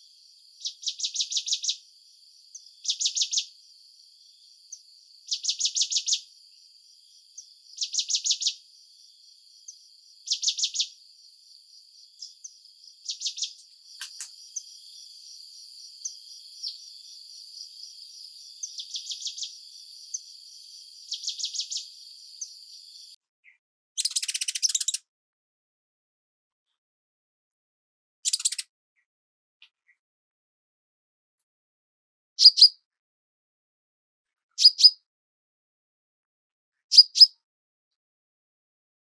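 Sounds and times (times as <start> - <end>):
high-pitched insect chorus: 0.0 - 23.2
birds trilling: 2.5 - 3.6, 9.6 - 23.1.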